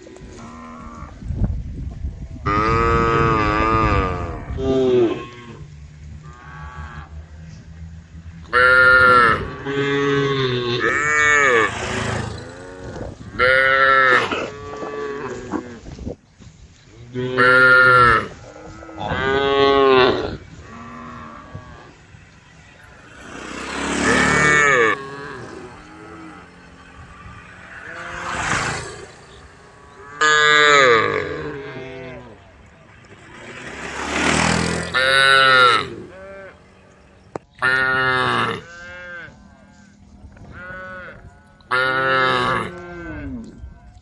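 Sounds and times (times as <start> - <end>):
cattle mooing: 2.5 - 5.6, 8.5 - 15.8, 17.2 - 36.9, 37.6 - 43.5.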